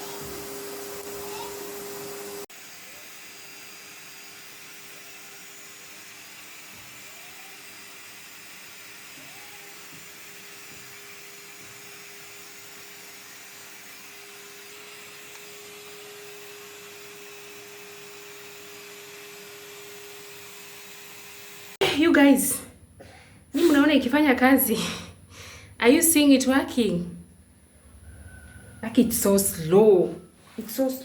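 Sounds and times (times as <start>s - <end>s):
vacuum cleaner running: 0.0s - 22.6s, 23.6s - 27.0s.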